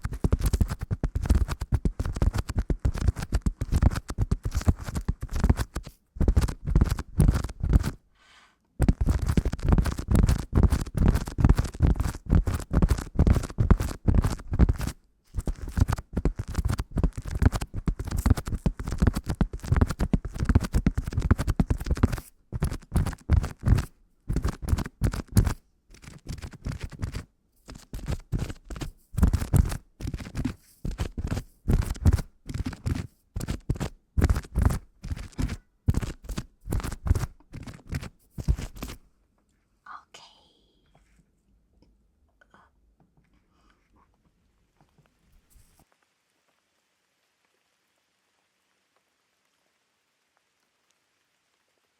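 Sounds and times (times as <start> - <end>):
rapid scratching and scraping: 0.0 - 8.0, 8.8 - 39.0.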